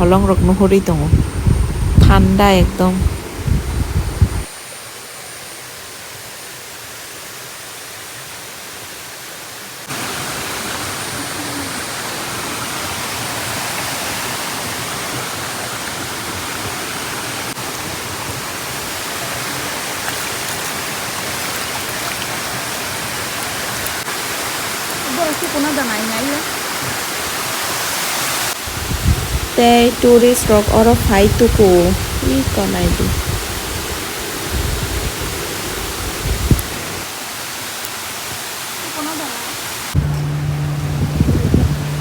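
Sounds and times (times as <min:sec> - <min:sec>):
water rushing over rocks: 0:09.8 - 0:28.8, 0:31.1 - 0:42.0.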